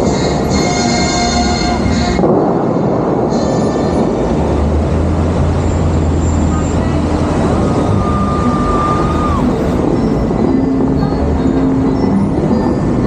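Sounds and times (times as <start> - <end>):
fountain water jets roaring: 0.0 - 13.0.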